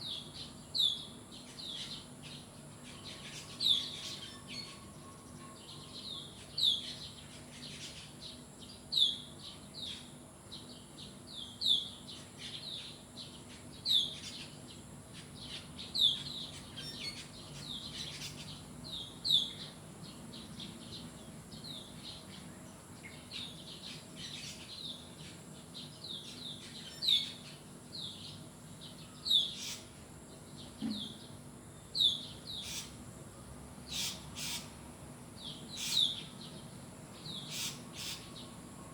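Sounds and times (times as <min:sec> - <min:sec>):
quieter bird chirps: 0:30.5 - 0:33.0, 0:33.9 - 0:34.7, 0:35.4 - 0:38.6.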